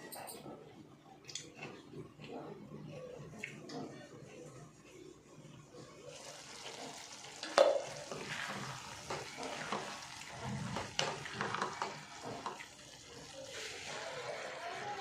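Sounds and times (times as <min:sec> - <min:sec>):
food sizzling: 0:06.0 - 0:15.0
spoon scraping a pan: 0:06.7 - 0:12.6.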